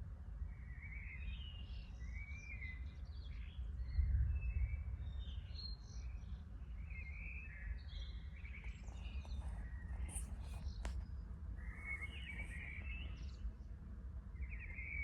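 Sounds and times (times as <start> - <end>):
birds singing: 6.9 - 13.7.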